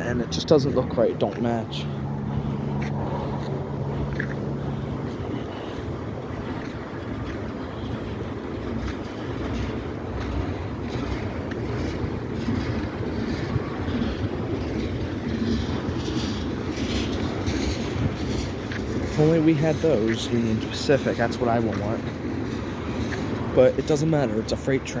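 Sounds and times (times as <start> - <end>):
train wheels rumbling on rails: 0.0 - 25.0
wheel clicks over rail joints: 8.8 - 25.0.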